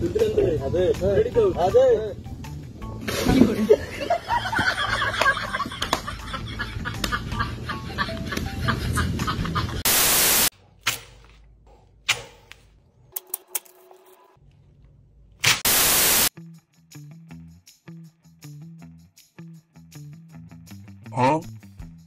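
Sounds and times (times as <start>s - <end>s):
static hiss bursts: 9.8s - 10.5s, 15.5s - 16.3s.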